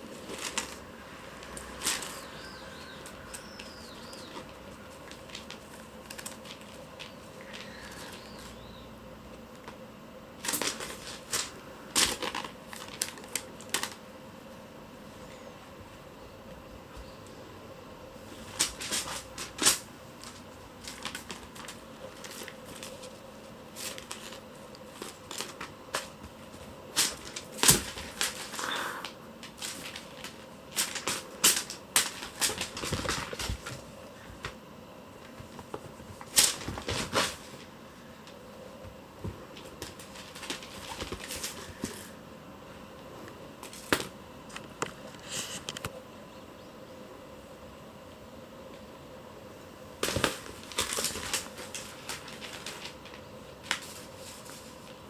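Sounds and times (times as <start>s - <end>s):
faint steady hum: 0.0s - 55.0s
paws scratching and scrabbling: 39.2s - 42.1s.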